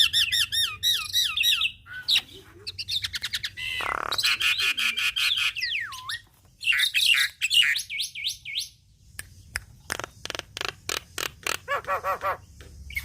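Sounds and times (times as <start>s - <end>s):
bird singing: 0.0s - 13.0s.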